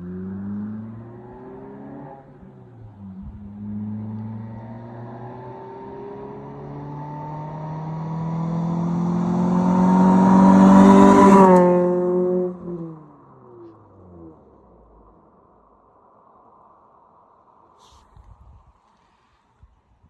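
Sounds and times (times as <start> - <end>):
car exhaust accelerating past: 0.0 - 15.9.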